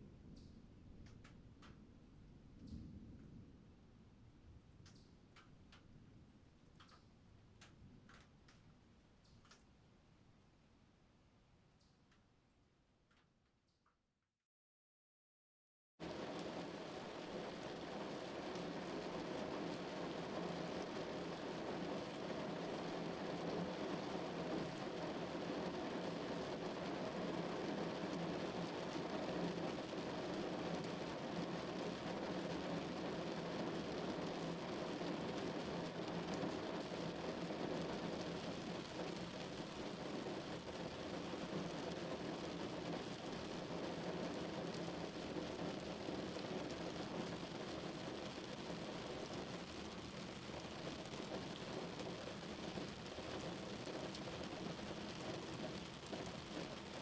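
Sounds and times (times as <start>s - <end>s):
rain on car roof: 16.0s - 57.0s.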